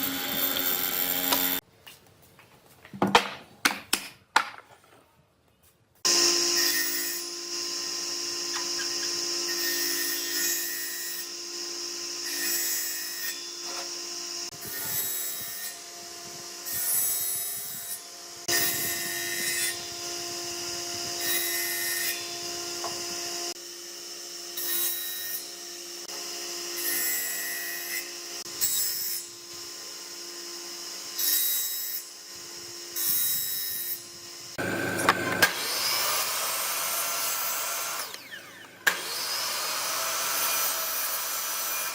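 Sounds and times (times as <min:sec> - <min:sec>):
power tool rasping wood: 0:00.0 - 0:01.6, 0:34.5 - 0:41.9.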